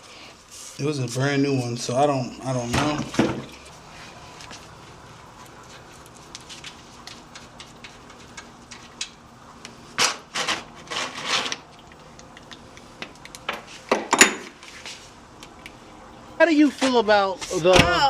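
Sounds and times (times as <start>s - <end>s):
tools clicking and tapping: 11.8s - 14.5s.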